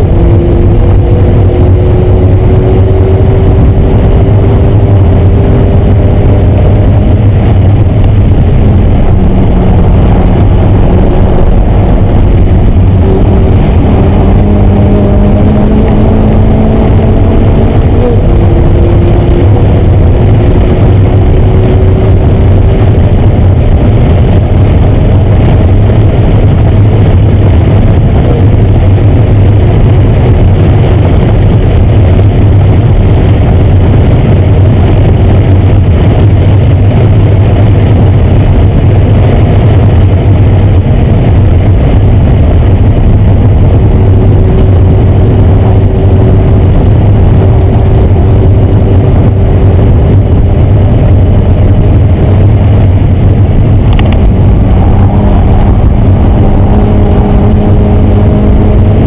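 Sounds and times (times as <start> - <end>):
car engine at high revs: 0.0 - 59.0.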